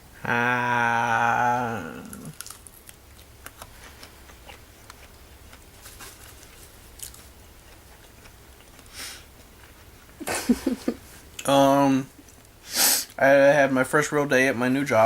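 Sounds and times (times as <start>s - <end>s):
person chewing: 1.9s - 10.2s.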